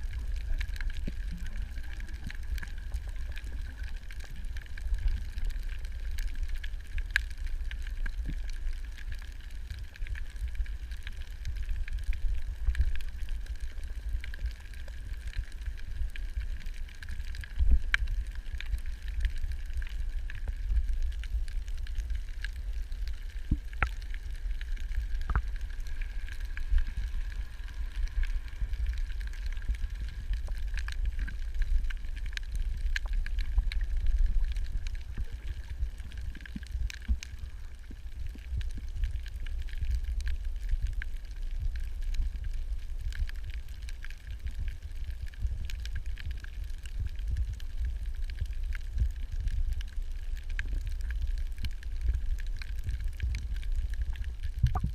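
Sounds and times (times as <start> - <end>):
faint steady whine: 0.0 - 54.9
low rumble of water: 0.0 - 54.9
sharp underwater clicks: 54.0 - 54.9.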